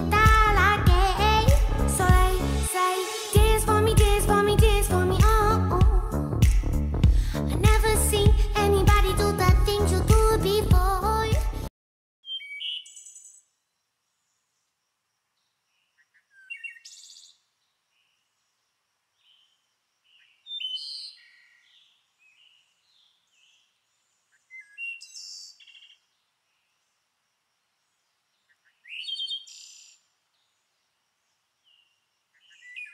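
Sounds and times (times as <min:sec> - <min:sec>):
music track: 0:00.0 - 0:11.7
songbirds chirping and whistling: 0:12.2 - 0:13.5, 0:15.8 - 0:18.2, 0:19.2 - 0:26.0, 0:28.4 - 0:30.6, 0:31.6 - 0:32.9.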